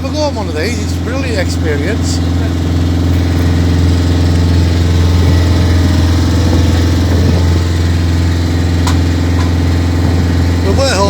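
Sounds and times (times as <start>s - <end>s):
motorboat engine humming: 0.0s - 11.0s.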